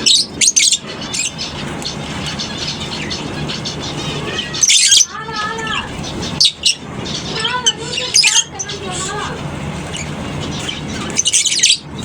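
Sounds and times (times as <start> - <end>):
lovebirds chirping: 0.0 - 12.0
shrill bird screeches: 2.4 - 9.2.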